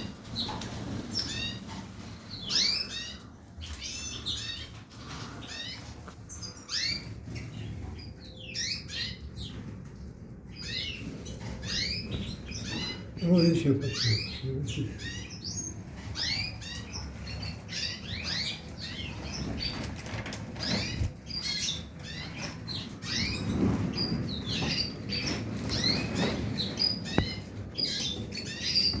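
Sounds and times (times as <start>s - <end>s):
finches twittering: 20.5s - 29.0s.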